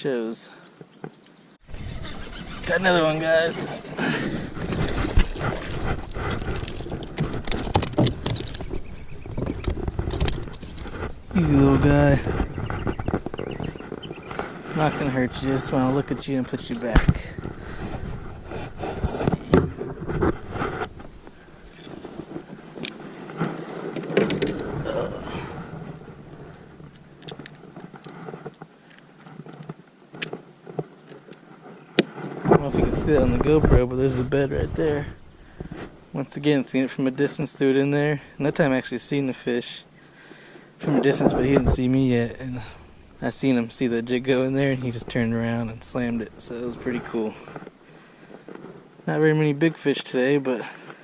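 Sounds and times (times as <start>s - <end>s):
rustling: 1.7s - 49.4s
handling clicks and knocks: 4.6s - 11.1s, 21.7s - 24.8s.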